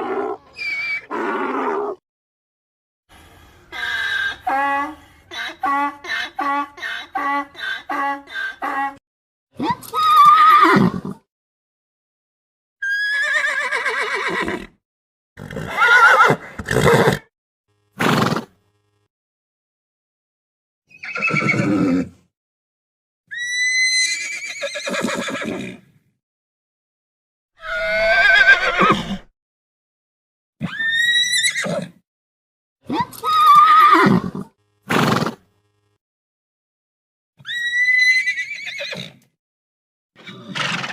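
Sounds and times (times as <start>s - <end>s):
horse whinnying: 0.0s - 2.0s, 10.0s - 11.2s, 12.8s - 14.7s, 15.4s - 17.2s, 20.9s - 22.1s, 23.3s - 25.8s, 27.6s - 29.3s, 30.6s - 31.9s, 33.3s - 35.4s, 37.4s - 39.2s, 40.2s - 40.9s
high wavering animal calls: 0.2s - 1.4s.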